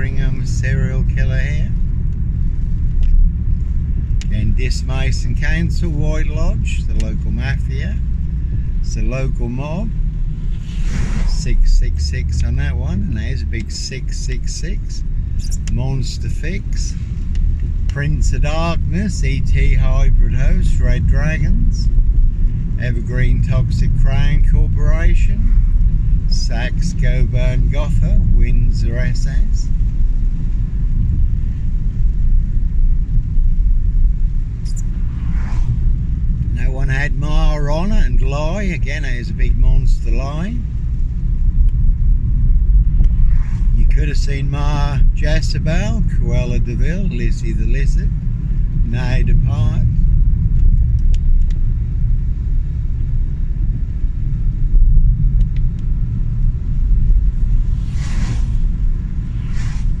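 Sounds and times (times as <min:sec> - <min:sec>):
loud fluttering low rumble: 0:00.0 - 1:00.0
short rushing whoosh: 0:10.2 - 0:12.0, 0:34.5 - 0:36.4, 0:42.8 - 0:43.8, 0:57.1 - 1:00.0.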